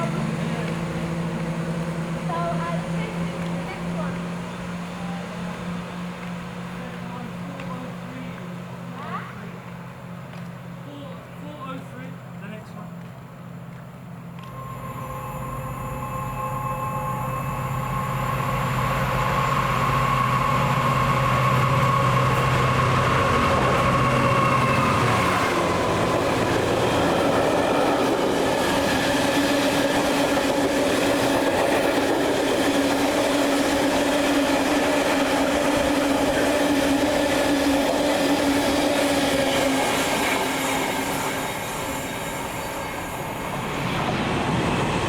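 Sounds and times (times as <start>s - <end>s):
train running past: 0.0s - 45.0s.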